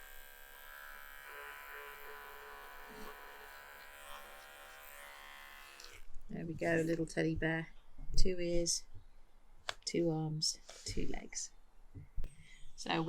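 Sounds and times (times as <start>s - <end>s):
pet hair clippers buzzing: 0.0s - 6.1s.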